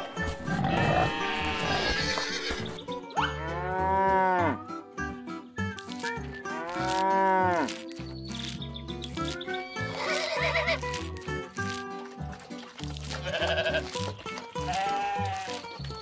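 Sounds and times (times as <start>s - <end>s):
cow mooing: 3.2s - 4.6s, 6.5s - 7.8s.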